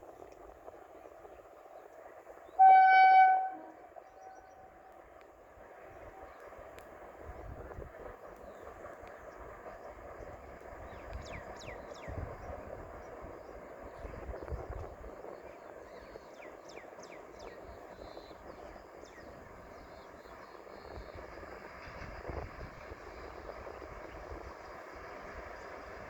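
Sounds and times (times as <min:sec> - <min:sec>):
low rumbling wind gusts: 0:00.0 - 0:26.0.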